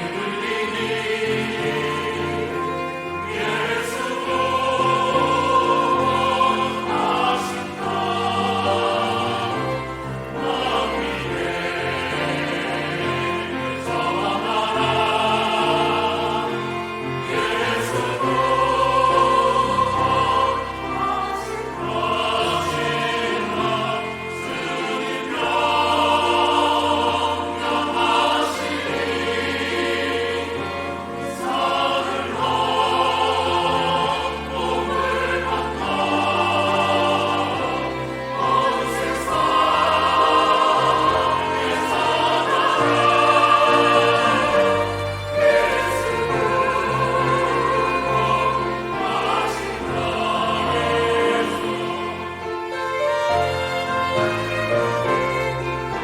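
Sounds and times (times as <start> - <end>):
choir singing: 0.0 - 56.0
organ: 0.0 - 56.0
piano: 0.0 - 56.0.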